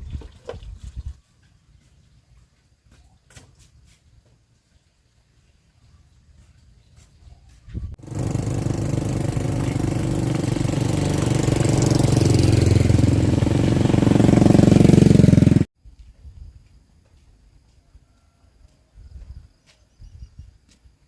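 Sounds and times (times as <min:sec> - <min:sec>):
small engine running: 0:08.0 - 0:15.7.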